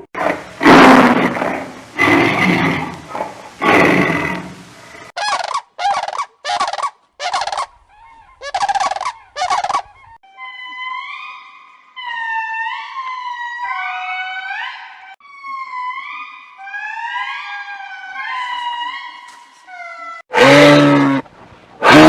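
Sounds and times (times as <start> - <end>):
deep animal roar: 0.2 - 5.1, 20.3 - 22.0
turkey gobbling: 5.2 - 10.2.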